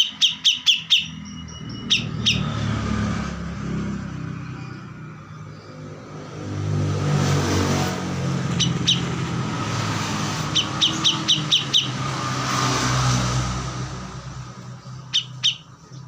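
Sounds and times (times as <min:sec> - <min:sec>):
songbird chirping: 0:00.0 - 0:02.9, 0:08.4 - 0:12.8, 0:14.3 - 0:16.0
vehicle engine passing: 0:00.0 - 0:16.0.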